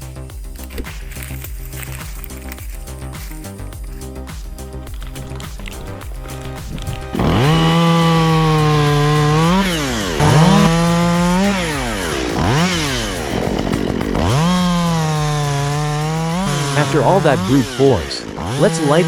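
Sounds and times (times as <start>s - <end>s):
chainsaw engine revving: 0.0s - 19.0s.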